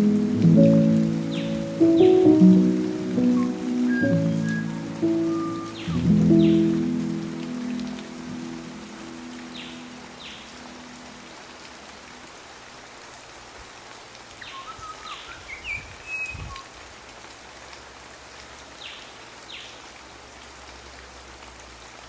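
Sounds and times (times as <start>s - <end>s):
downward-sweeping bird calls: 0.0s - 10.6s, 14.4s - 16.6s
steady rain falling: 0.0s - 22.0s
bird chirps: 1.1s - 7.7s.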